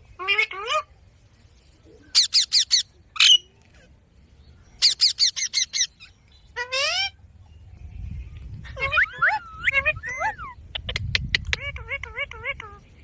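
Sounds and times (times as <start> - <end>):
parakeet calling: 2.1 - 3.4, 4.8 - 7.2, 8.6 - 12.9.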